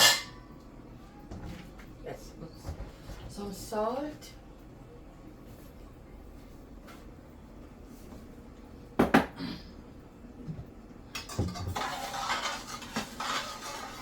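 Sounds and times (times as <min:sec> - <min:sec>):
utensils scraping and rattling: 0:00.0 - 0:00.4, 0:11.2 - 0:14.0.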